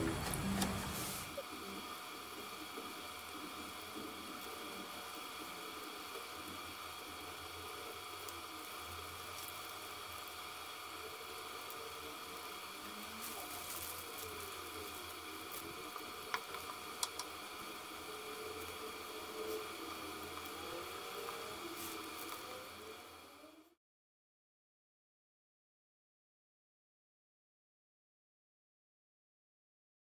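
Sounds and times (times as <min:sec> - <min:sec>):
eggplant sizzling in oil: 0:00.1 - 0:23.4
wooden spatula clicking on pan: 0:16.3 - 0:17.3.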